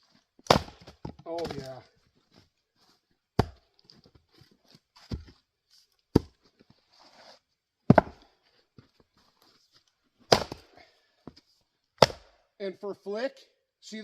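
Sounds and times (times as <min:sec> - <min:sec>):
axe chopping wood: 0:00.4 - 0:01.8, 0:03.4 - 0:03.7, 0:06.1 - 0:06.4, 0:07.9 - 0:08.3, 0:10.3 - 0:10.8, 0:12.0 - 0:12.4.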